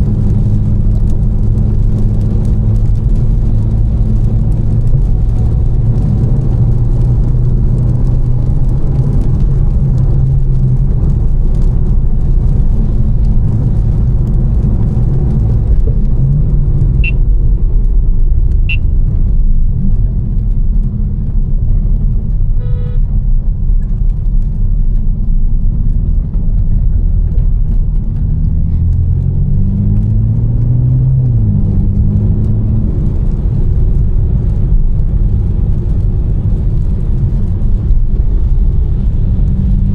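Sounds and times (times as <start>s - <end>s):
car engine droning: 0.0s - 39.9s
road noise: 0.0s - 39.9s
electronic beep: 17.0s - 17.2s, 18.7s - 18.9s
short high chirps: 18.7s - 18.9s.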